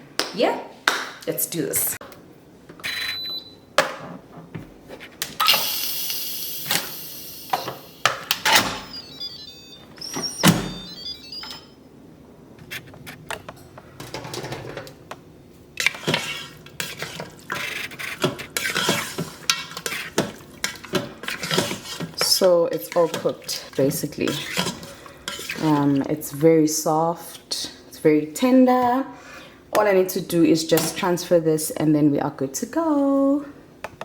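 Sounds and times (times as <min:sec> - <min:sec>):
pots and utensils clattering: 0:14.0 - 0:14.9.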